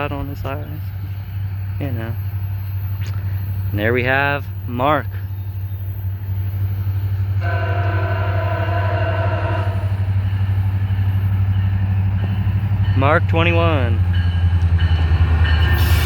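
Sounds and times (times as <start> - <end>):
locomotive low rumble: 0.0 - 16.0
train air horn: 7.3 - 10.4.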